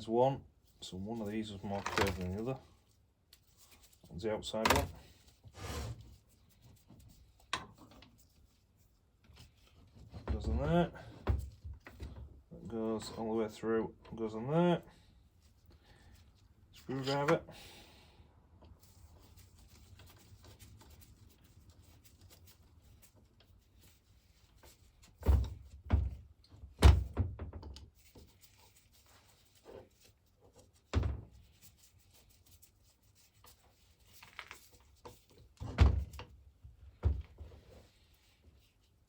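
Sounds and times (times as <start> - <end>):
handling tools on a workbench: 1.4 - 6.2, 6.9 - 14.2, 15.6 - 17.5, 33.4 - 39.0.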